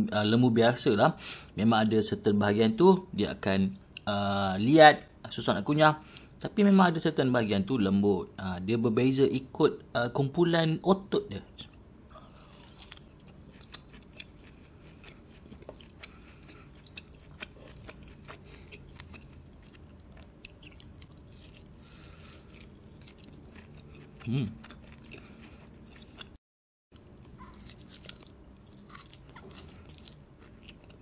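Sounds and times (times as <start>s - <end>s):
wet mouth chewing clicks: 12.2s - 26.4s
person humming: 24.3s - 24.6s.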